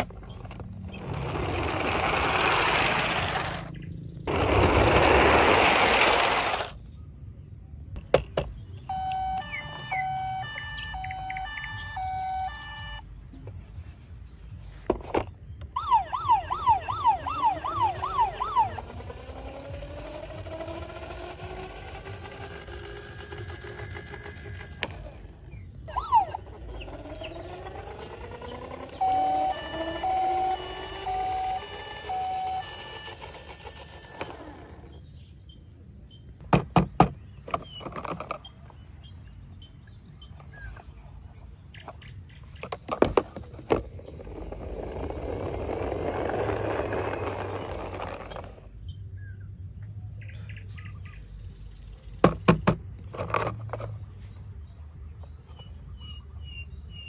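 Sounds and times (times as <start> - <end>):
toy electronic whine: 0.0 - 6.8, 8.9 - 13.0, 15.6 - 35.1, 42.6 - 48.7
short beeps: 8.9 - 13.0.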